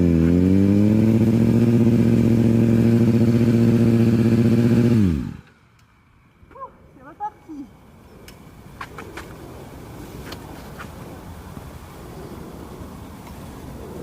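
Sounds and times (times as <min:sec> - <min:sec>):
motorcycle engine revving: 0:00.0 - 0:05.6.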